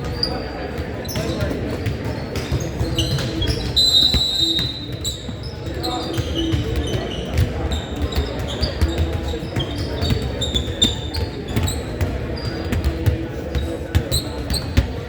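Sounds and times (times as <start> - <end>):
murmur of voices: 0.0 - 15.0
sneakers squeaking on court: 0.0 - 15.0
basketball bouncing: 6.1 - 15.0.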